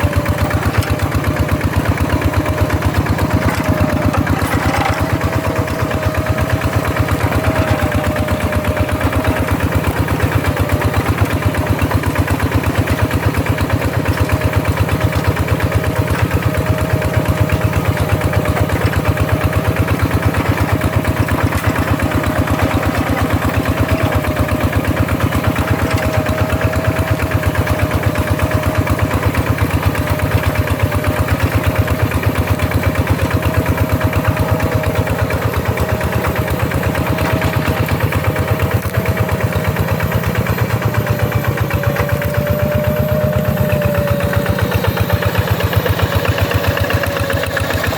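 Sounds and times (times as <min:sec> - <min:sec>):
hand tractor engine running: 0:00.0 - 0:47.9.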